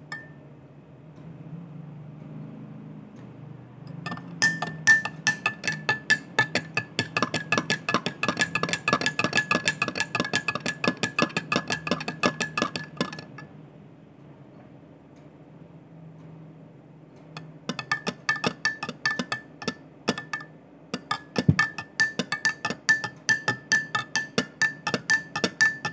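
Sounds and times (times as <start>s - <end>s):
cup ringing: 0.1s - 0.4s, 3.9s - 13.5s, 17.4s - 25.9s
spoon clinking in cup: 3.9s - 13.5s, 17.4s - 25.9s.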